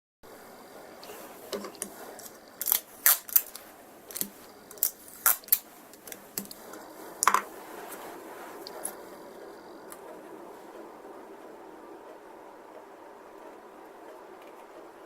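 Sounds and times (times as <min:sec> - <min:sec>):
plastic parts clicking and tapping: 0:01.5 - 0:07.5.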